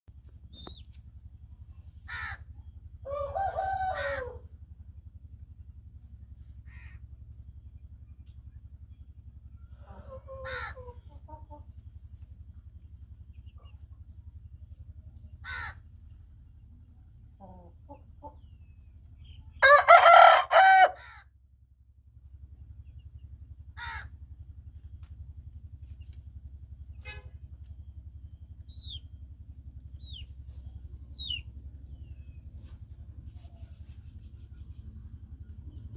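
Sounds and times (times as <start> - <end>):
steady low hum: 0.1 - 35.9
rooster crowing: 3.0 - 4.5, 19.6 - 21.2
chickens clucking: 9.8 - 15.0, 17.2 - 19.4.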